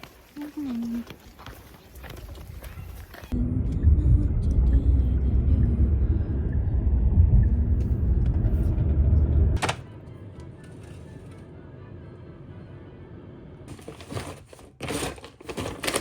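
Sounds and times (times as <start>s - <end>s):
loud low rumble: 3.3s - 9.6s.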